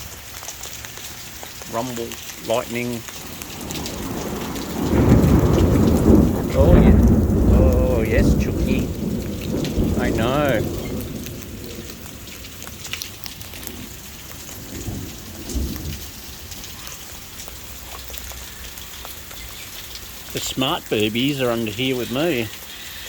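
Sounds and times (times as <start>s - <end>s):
heavy rain falling: 0.0s - 23.0s
thunder rumble: 2.5s - 22.6s.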